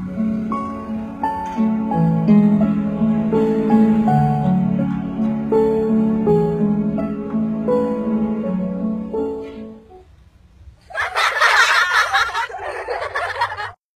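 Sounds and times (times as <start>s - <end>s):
soft instrumental music: 0.0s - 10.3s
crowd laughing: 10.8s - 13.8s.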